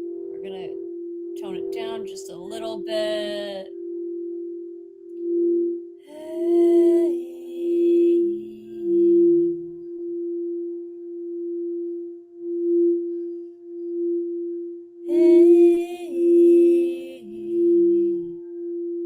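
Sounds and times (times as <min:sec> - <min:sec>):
singing bowl ringing: 0:00.0 - 0:19.0
person toning held notes: 0:01.4 - 0:03.7.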